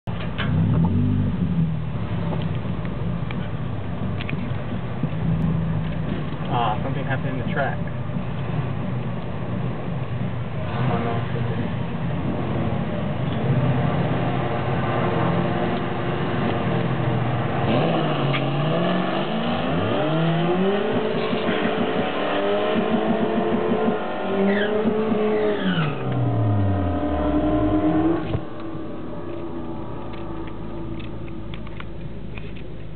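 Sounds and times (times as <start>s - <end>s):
car engines revving: 0.1s - 32.9s.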